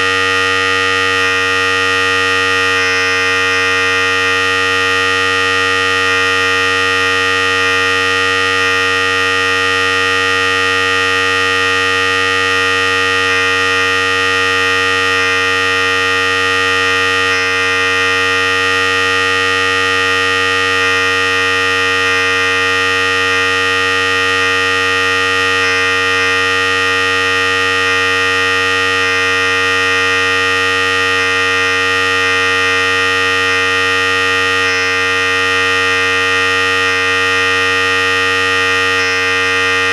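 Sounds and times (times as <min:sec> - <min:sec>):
electric hair clipper buzzing: 0:00.0 - 0:39.9.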